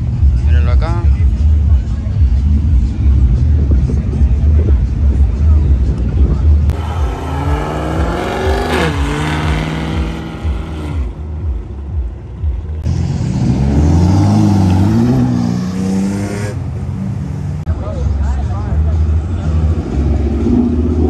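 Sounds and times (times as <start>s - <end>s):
car engine revving: 6.7s - 11.7s, 12.7s - 17.7s
sports car engine revving: 6.7s - 11.7s, 12.9s - 17.6s.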